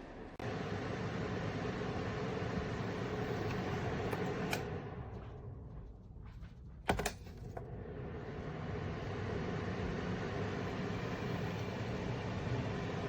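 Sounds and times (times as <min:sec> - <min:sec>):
heater fan whirring: 0:00.0 - 0:13.0
heater switch clicks: 0:03.4 - 0:04.7.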